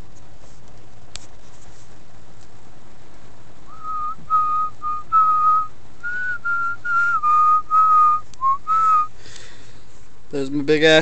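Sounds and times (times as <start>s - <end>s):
rain on a van: 0.0s - 11.0s
person whistling a tune: 3.7s - 9.1s.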